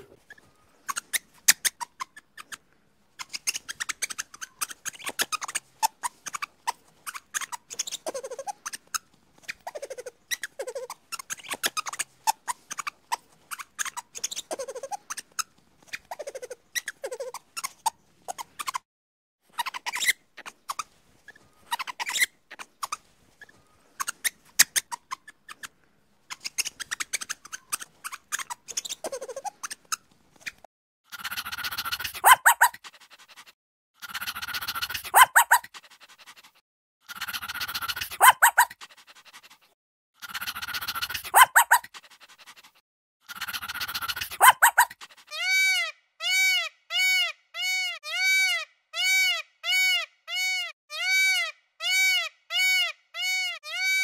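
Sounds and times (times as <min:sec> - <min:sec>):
harsh animal calls: 0:00.0 - 0:01.2, 0:43.2 - 0:53.8
animal squeaks and clicks: 0:00.0 - 0:18.9, 0:19.5 - 0:54.0
fast short pitched animal calls: 0:31.1 - 0:45.8.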